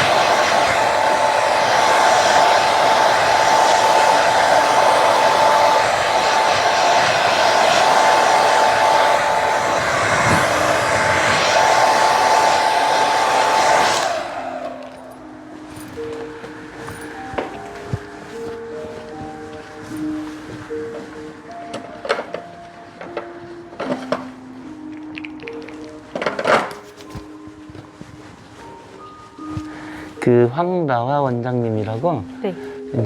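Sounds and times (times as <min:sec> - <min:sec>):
hair dryer blowing: 0:00.0 - 0:22.0.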